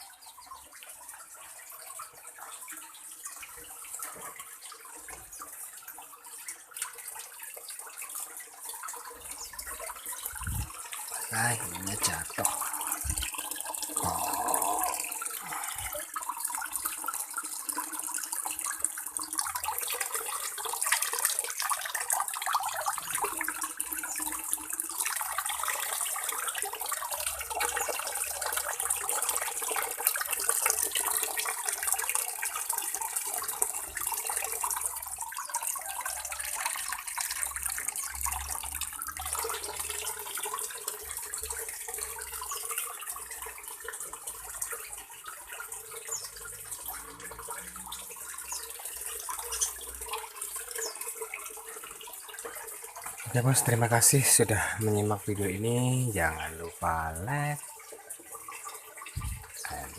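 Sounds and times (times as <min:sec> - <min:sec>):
running splashing water: 0:00.0 - 0:59.9.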